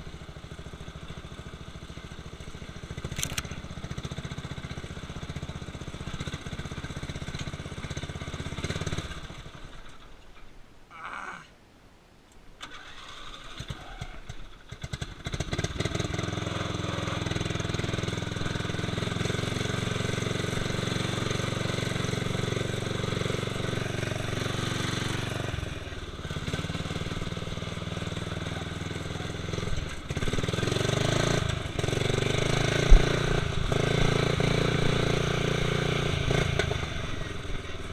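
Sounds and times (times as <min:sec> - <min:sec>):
lawn tractor engine running: 0:00.0 - 0:10.2, 0:12.6 - 0:37.9
engine cranking: 0:03.0 - 0:03.6, 0:12.6 - 0:16.4.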